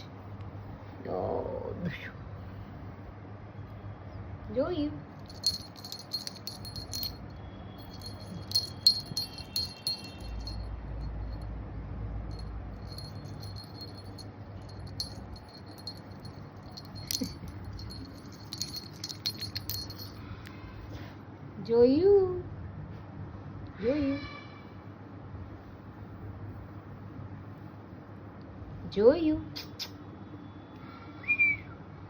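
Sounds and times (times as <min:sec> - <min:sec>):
faint steady hum: 0:00.0 - 0:23.9
small metal jingling: 0:05.2 - 0:11.5, 0:12.3 - 0:20.3.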